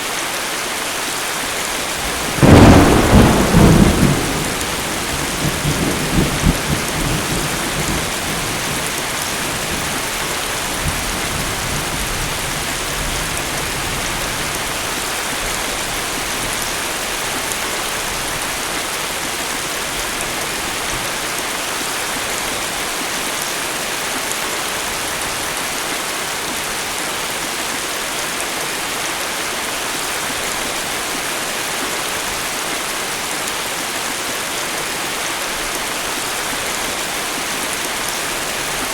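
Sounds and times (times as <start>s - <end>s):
steady rain hiss: 0.0s - 38.9s
thunder rumble: 1.9s - 10.2s.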